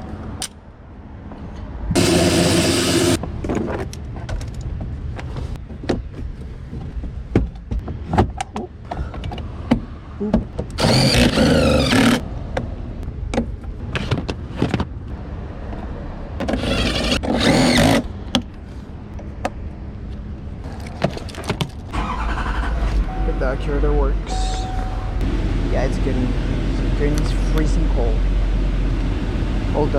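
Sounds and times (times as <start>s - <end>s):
power tool whirring: 2.0s - 3.2s, 10.8s - 12.2s, 16.5s - 18.0s
low steady rumble: 21.9s - 29.9s.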